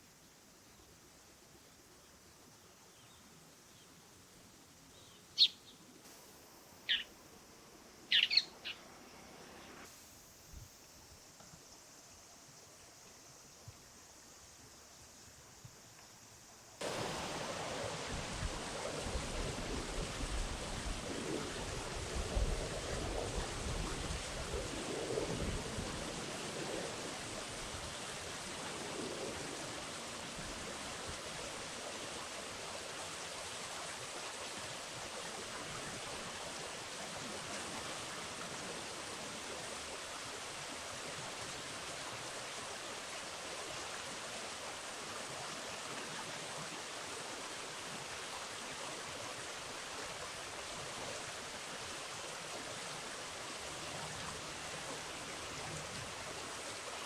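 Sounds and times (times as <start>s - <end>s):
river water rushing: 16.8s - 22.4s, 29.6s - 57.0s.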